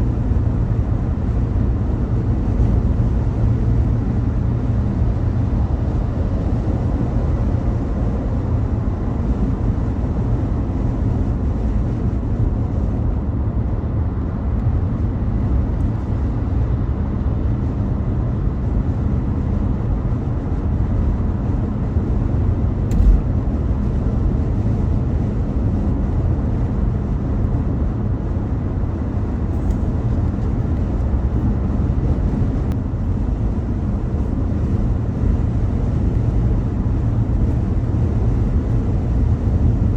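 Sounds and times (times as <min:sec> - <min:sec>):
car road noise on highway: 0:00.0 - 0:39.9
short knock like a bump: 0:22.9 - 0:23.3.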